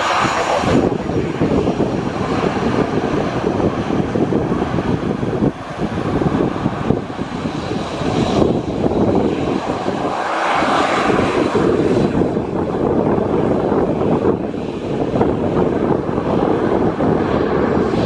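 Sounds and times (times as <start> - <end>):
airliner engines running: 0.0 - 18.0
wind rumbling on microphone: 0.0 - 18.0.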